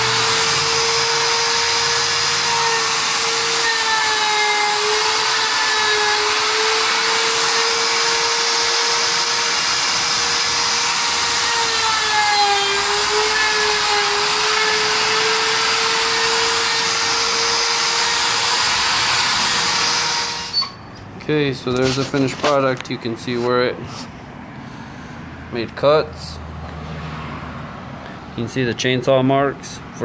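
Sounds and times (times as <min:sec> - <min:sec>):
router cutting wood: 0:00.0 - 0:20.7
router motor whine: 0:00.0 - 0:20.7.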